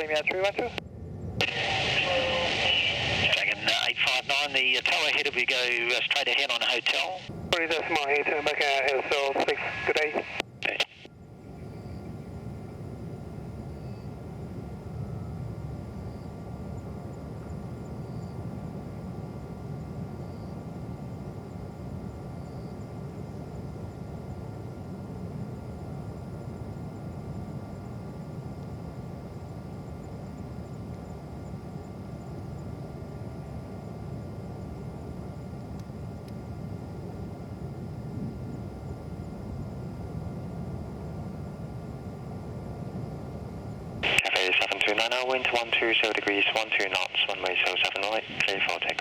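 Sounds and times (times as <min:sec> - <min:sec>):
distant jet aircraft rumble: 0:00.0 - 0:49.0
airport traffic: 0:01.4 - 0:11.1, 0:43.8 - 0:49.0.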